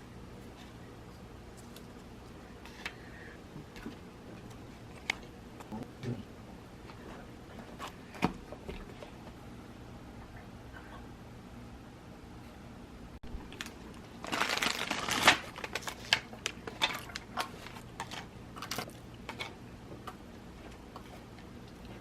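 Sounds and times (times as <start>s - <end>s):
rustling and crinkling: 0.3s - 3.0s, 13.3s - 22.0s.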